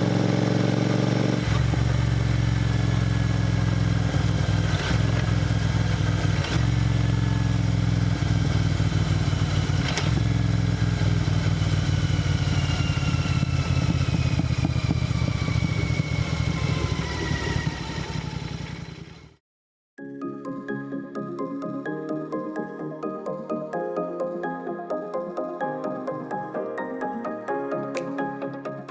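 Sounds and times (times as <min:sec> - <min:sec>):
motorcycle engine and exhaust cruising: 0:00.0 - 0:19.4.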